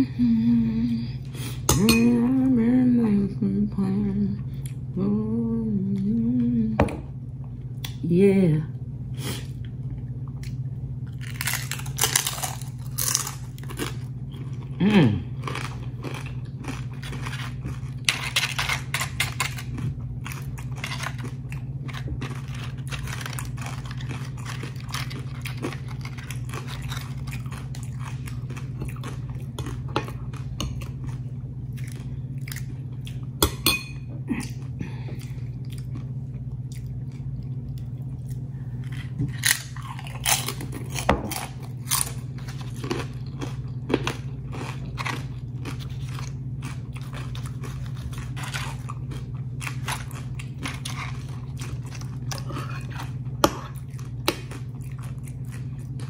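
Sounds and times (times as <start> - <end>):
low hum: 0.0 - 56.0
crunching tortilla chips: 10.5 - 33.3, 35.2 - 56.0.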